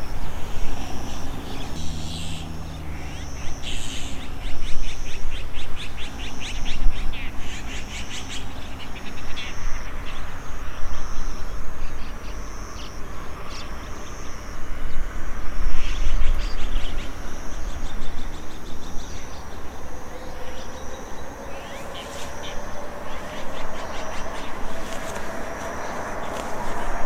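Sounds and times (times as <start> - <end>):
birds chirping in trills: 0.0 - 15.1, 15.7 - 27.0
grass insects buzzing: 0.0 - 27.0
faint rising hum: 18.8 - 27.0.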